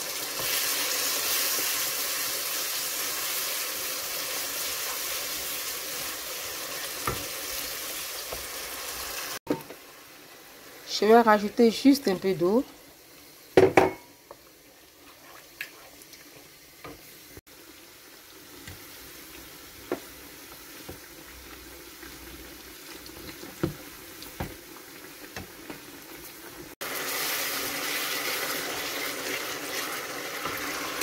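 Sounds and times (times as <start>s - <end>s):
slices frying in hot oil: 0.0s - 31.0s
sauce bubbling in a wok: 12.7s - 31.0s.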